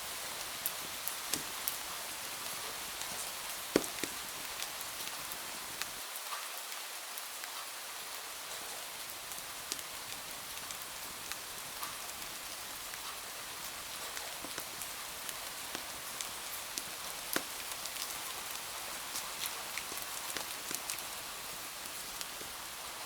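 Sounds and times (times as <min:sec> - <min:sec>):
rain on window glass: 0:00.0 - 0:06.1, 0:08.3 - 0:23.0
sharp ticks and pops: 0:03.7 - 0:05.2, 0:14.1 - 0:21.2.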